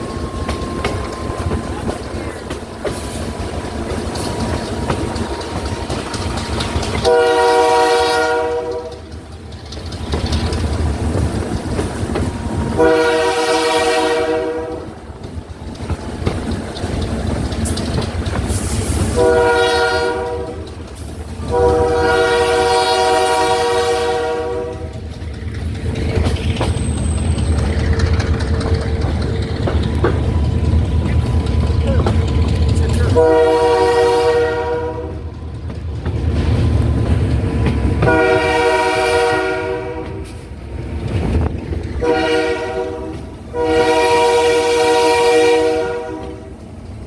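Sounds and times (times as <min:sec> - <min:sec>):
train rumble and wheel clatter: 0:00.0 - 0:47.0
locomotive air horn blasts: 0:07.0 - 0:09.0, 0:12.7 - 0:15.0, 0:19.0 - 0:20.7, 0:21.4 - 0:25.0, 0:33.1 - 0:35.3, 0:38.0 - 0:40.3, 0:42.0 - 0:46.5.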